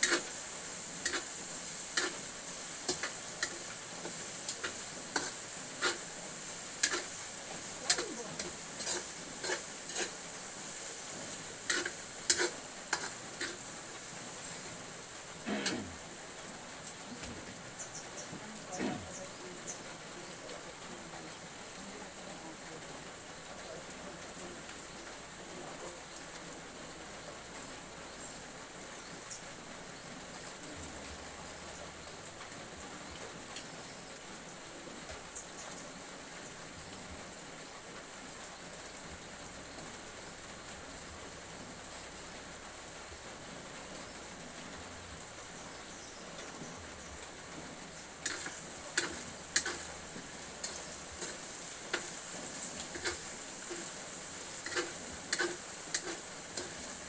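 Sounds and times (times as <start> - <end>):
utensil scraping a wok: 0.0 - 14.7, 15.4 - 16.0, 48.2 - 57.0
food sizzling in a wok: 0.0 - 57.0.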